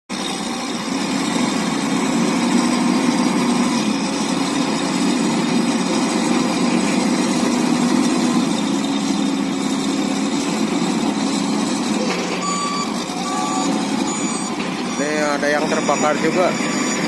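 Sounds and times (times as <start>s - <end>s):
vehicle engine running: 0.1s - 17.0s.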